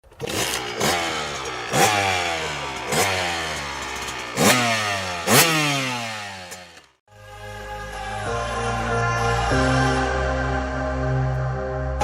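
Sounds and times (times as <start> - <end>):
two-stroke engine throttle blips: 0.0 - 7.0.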